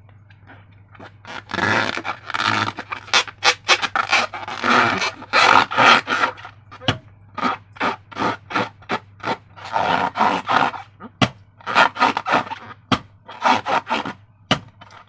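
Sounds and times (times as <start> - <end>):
slime squelching by hand: 0.3 - 14.2.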